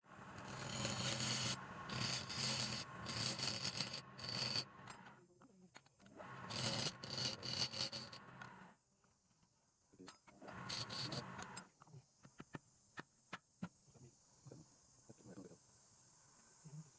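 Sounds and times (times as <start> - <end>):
turning tool scraping wood on lathe: 0.3 - 5.2, 6.2 - 8.6, 10.5 - 11.6.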